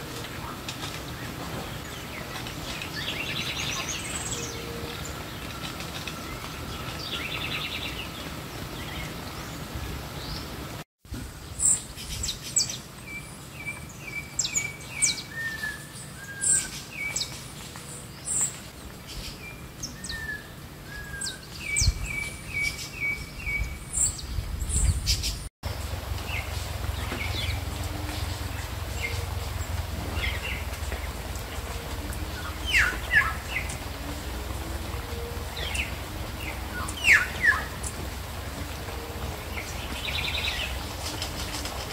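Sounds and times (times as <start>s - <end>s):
songbirds chirping and whistling: 0.0s - 10.8s, 11.5s - 41.9s
steady low rumble: 23.6s - 41.9s.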